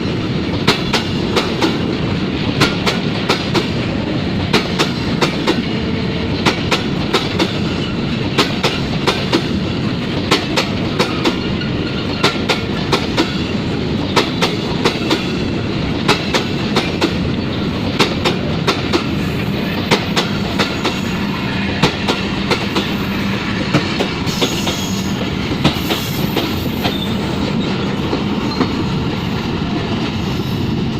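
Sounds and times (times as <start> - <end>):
freight train rolling past: 0.0 - 30.9
wheels clacking over rail joints: 4.5 - 23.0
faint high wheel squeal: 26.0 - 27.4.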